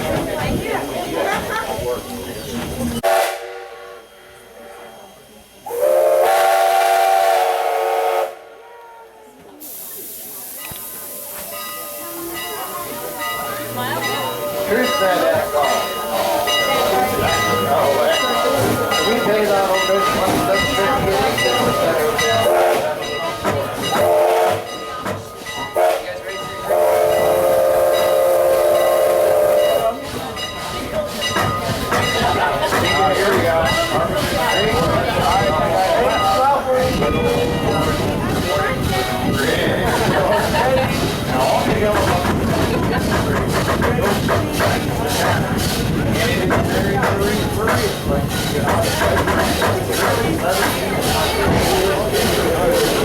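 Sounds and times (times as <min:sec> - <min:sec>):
steam locomotive chime whistle: 0:03.0 - 0:08.5, 0:09.7 - 0:38.1
steam hiss: 0:09.5 - 0:53.0.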